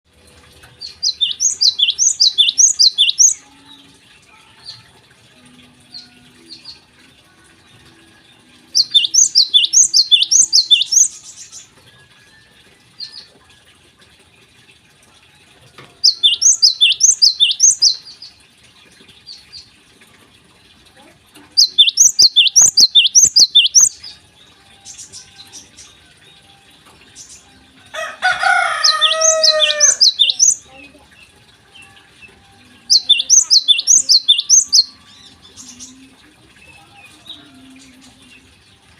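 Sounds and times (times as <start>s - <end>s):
sparrow singing rapid high notes: 0.9s - 3.4s, 8.8s - 11.6s, 16.0s - 18.2s, 21.6s - 24.0s, 28.4s - 30.6s, 32.9s - 35.9s
harsh bird call: 28.3s - 30.6s.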